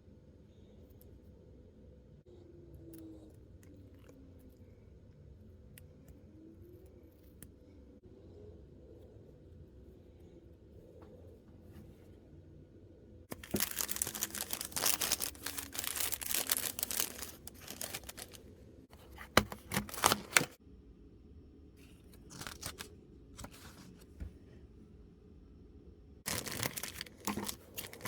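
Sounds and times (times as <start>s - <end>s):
packaging tearing and crinkling: 13.3s - 18.4s, 19.0s - 20.6s, 22.2s - 23.8s, 26.3s - 28.0s.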